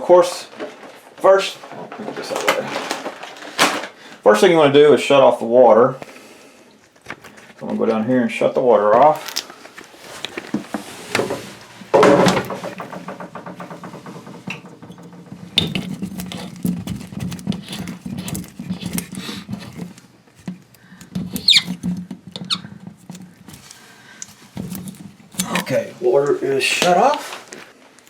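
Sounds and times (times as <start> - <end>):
small taps and scrapes: 12.4 - 27.7
short squeaks: 21.3 - 21.8.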